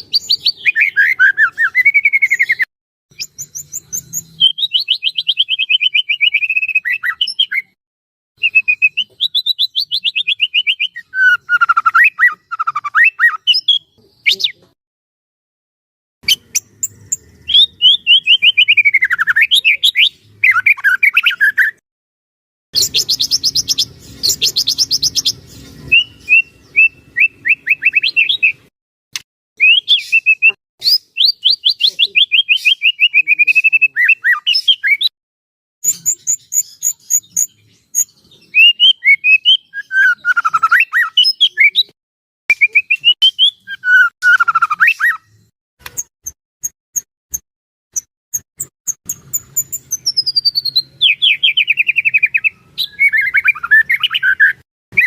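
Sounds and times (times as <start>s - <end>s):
harsh high bird chatter: 0.0s - 7.8s, 16.2s - 21.8s, 22.8s - 28.7s, 35.8s - 42.0s, 47.3s - 54.6s
songbird singing whistled notes: 0.0s - 7.8s, 8.4s - 14.7s, 16.2s - 21.8s, 22.8s - 28.7s, 29.6s - 35.1s, 35.8s - 46.1s, 48.0s - 55.0s.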